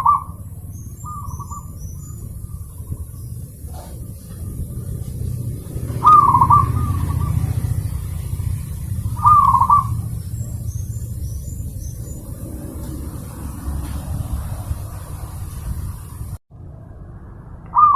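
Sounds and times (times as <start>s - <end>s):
faint high bird chirps: 0.0s - 12.5s, 17.7s - 17.9s
dove cooing: 0.0s - 14.0s
steady low rumble: 0.0s - 17.9s.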